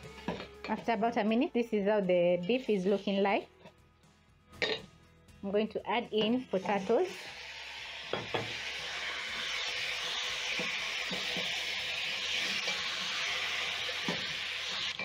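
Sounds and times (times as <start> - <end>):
food sizzling in hot oil: 6.4 - 15.0.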